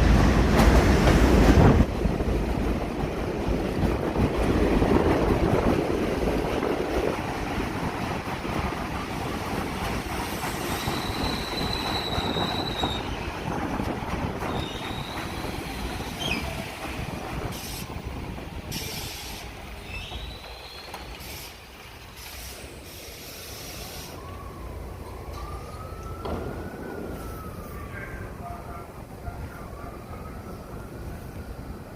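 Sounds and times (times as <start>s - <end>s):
subway train rumbling: 0.0s - 31.9s
train wheels squealing: 10.5s - 13.2s, 14.5s - 16.6s, 18.8s - 21.6s
siren: 24.0s - 31.6s.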